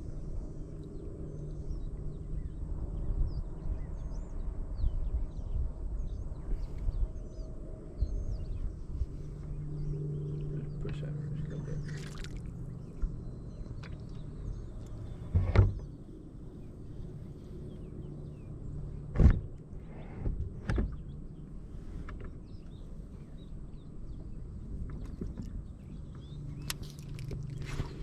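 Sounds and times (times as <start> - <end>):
steady low hum: 0.0 - 28.0
knocks and bumps in a boat: 15.2 - 16.0, 20.2 - 21.1, 24.1 - 27.7.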